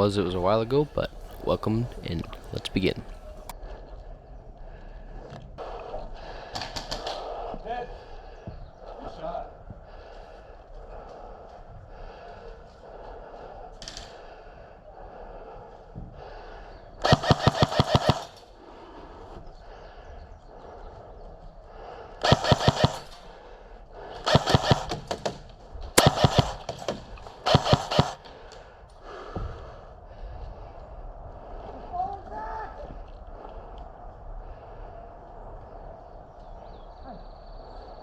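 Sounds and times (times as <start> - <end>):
airsoft rifle bursts: 17.0 - 18.5, 22.2 - 23.3, 24.2 - 25.3, 26.0 - 28.3.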